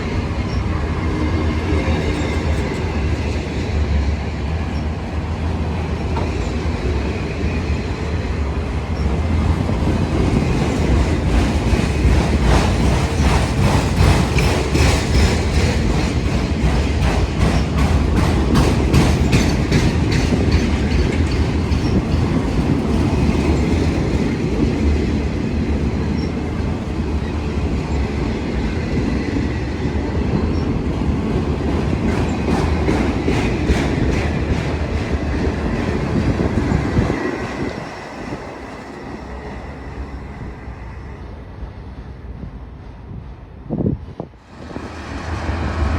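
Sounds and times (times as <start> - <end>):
train rumbling past: 0.0 - 45.9
wheels clicking over rail joints: 8.9 - 29.0, 30.5 - 38.0.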